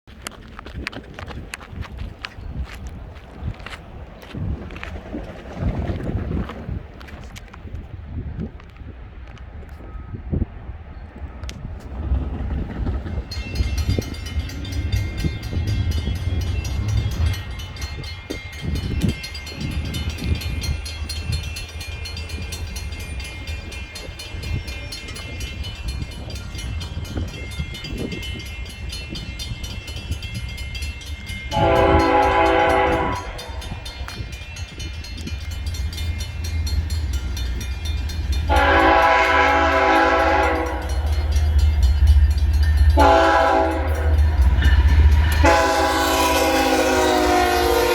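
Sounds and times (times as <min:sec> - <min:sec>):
train rumbling and ticking: 0:00.0 - 0:47.9
train horn blast: 0:31.5 - 0:33.7, 0:38.4 - 0:41.3, 0:42.8 - 0:47.9.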